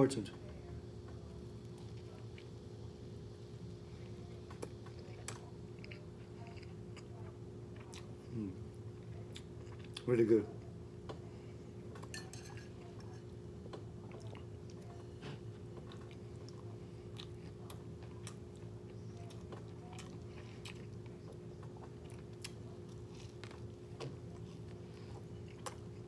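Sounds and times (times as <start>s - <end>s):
person chewing: 4.4s - 10.1s, 13.7s - 26.0s.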